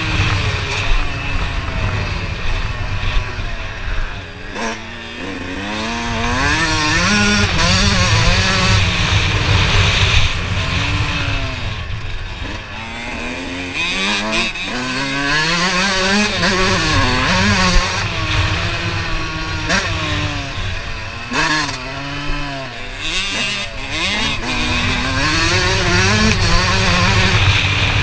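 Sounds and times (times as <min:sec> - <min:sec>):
motocross bike engine revving: 0:00.0 - 0:28.0.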